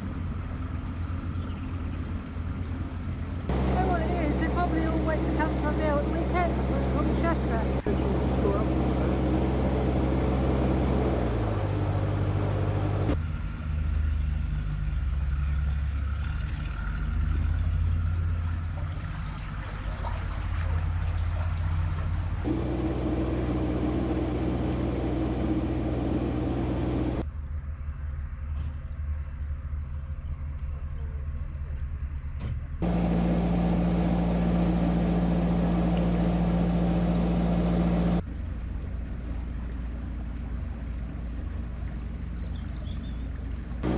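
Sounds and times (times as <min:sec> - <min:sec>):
boat diesel engine running: 0:03.1 - 0:13.2, 0:15.0 - 0:27.2, 0:32.8 - 0:43.9.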